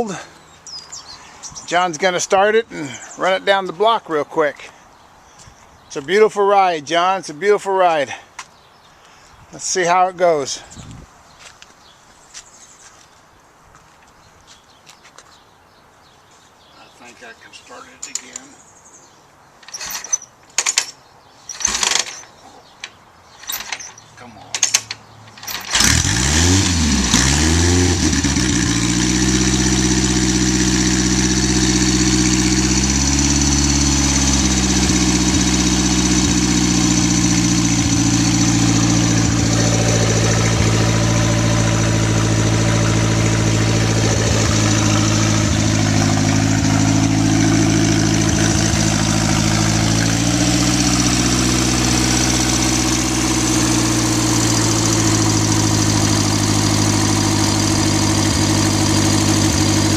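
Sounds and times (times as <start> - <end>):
motorcycle engine idling: 28.0 - 59.9.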